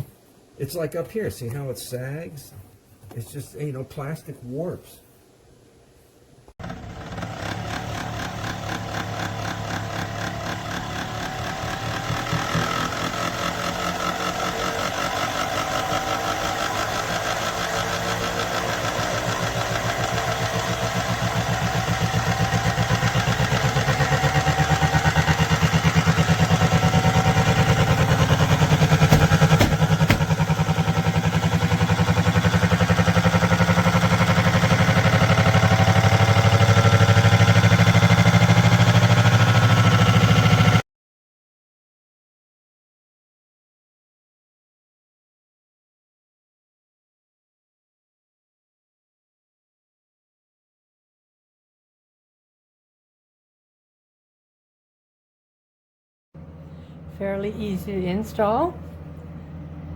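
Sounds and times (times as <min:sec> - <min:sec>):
window air conditioner running: 0:07.1 - 0:34.5, 0:56.4 - 0:59.9.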